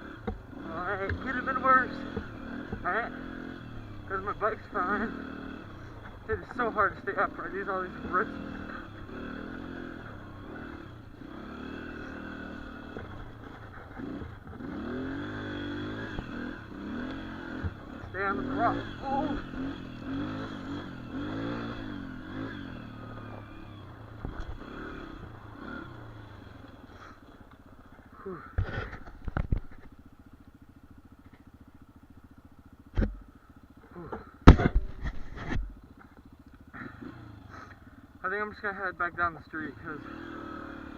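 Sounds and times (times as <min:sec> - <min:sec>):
dirt bike engine revving: 0:00.0 - 0:40.9
knocks and clatters: 0:34.1 - 0:36.2.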